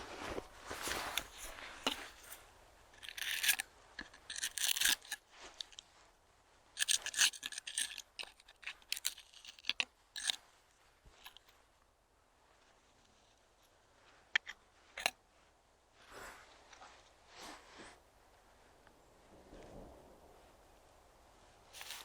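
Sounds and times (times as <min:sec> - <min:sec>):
scraping and rustling: 0:00.0 - 0:06.1, 0:21.4 - 0:22.0.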